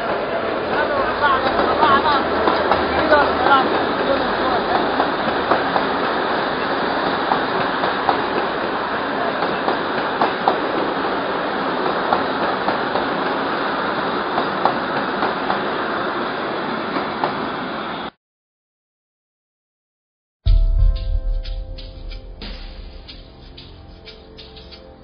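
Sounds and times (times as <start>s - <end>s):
wheels clacking over rail joints: 0.0s - 15.7s, 22.4s - 25.0s
wheel and rail noise: 0.0s - 18.1s, 22.0s - 25.0s.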